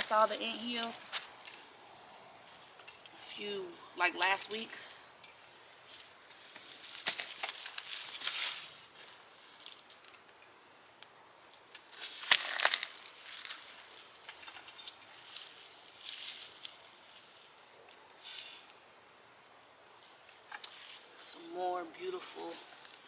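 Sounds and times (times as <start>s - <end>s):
digging through soil and vines by hand: 0.0s - 1.8s, 5.9s - 10.1s, 11.5s - 18.8s, 22.1s - 23.0s.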